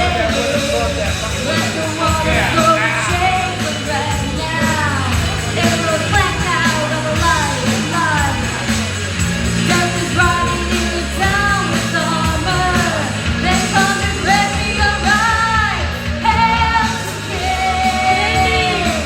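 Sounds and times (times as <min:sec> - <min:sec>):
hard rock music: 0:00.0 - 0:19.0
person singing: 0:01.6 - 0:08.6.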